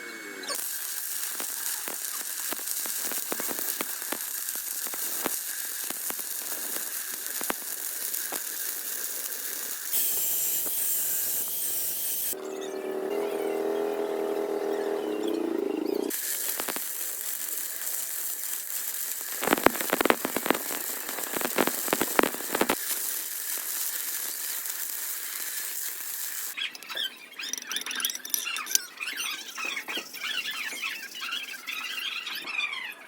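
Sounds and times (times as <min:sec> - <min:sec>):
welding arc hissing: 0:00.3 - 0:12.4, 0:16.1 - 0:26.6
sharp crackles: 0:00.5 - 0:12.4, 0:16.1 - 0:28.8
high squeals and chirps: 0:24.1 - 0:33.0.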